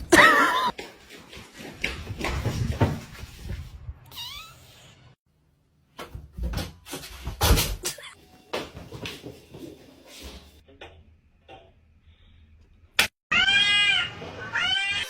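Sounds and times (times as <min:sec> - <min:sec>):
cat meowing: 0:13.3 - 0:15.0.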